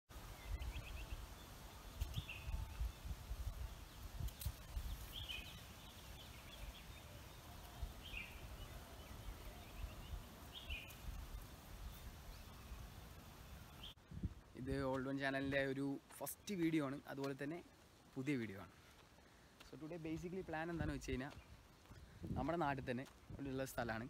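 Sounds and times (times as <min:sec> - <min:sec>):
wind rumble on microphone: 0:01.9 - 0:07.0, 0:14.0 - 0:14.7, 0:21.9 - 0:23.5.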